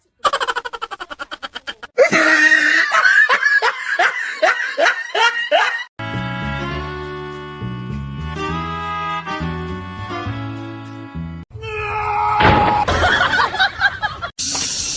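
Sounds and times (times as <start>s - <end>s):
person laughing: 0.2s - 5.9s.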